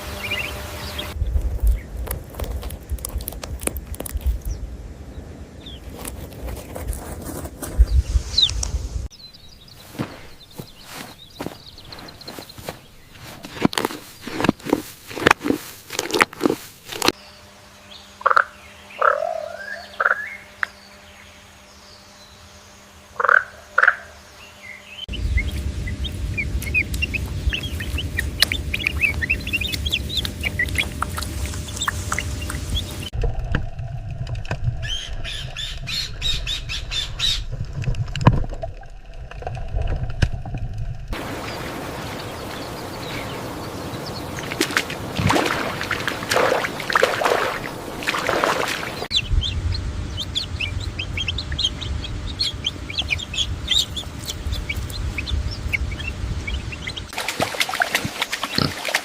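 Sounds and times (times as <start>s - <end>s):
high bird chirps: 0.0s - 1.9s, 23.3s - 33.1s, 49.0s - 57.1s
low rumbling noise: 0.0s - 9.7s, 19.8s - 58.6s
bird squawks: 0.1s - 1.1s, 18.2s - 20.8s, 23.2s - 33.1s, 49.1s - 57.1s.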